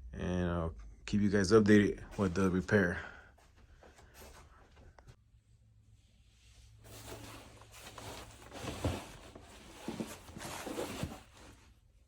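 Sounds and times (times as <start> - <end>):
rustling and scraping handling: 6.3 - 12.0.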